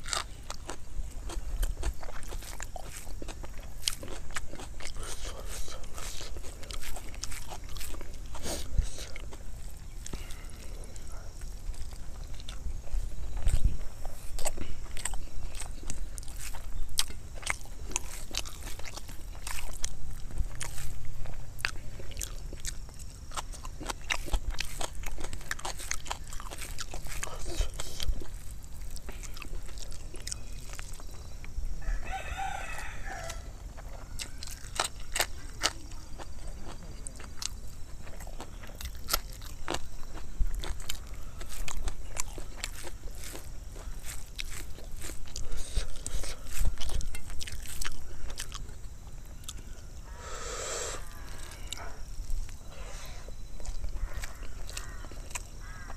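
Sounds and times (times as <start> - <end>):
person chewing food: 0.0 - 55.9
rooster crowing: 31.8 - 34.4, 50.0 - 52.0.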